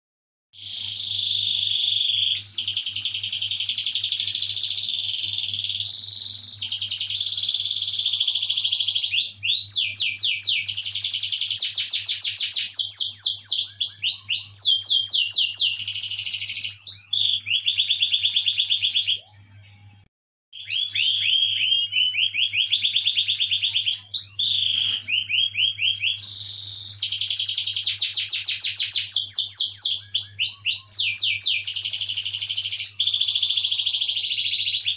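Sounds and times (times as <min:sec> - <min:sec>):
canary singing trills: 0:00.6 - 0:19.6, 0:20.6 - 0:34.9.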